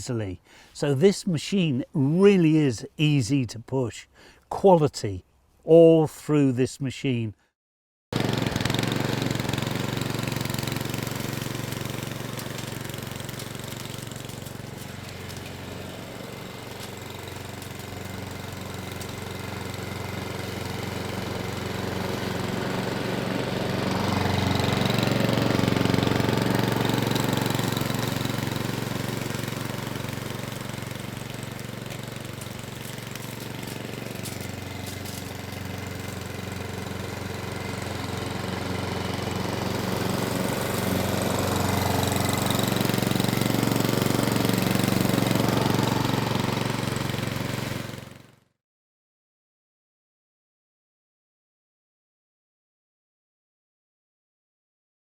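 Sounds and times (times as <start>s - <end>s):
lawnmower engine running: 8.2s - 48.4s.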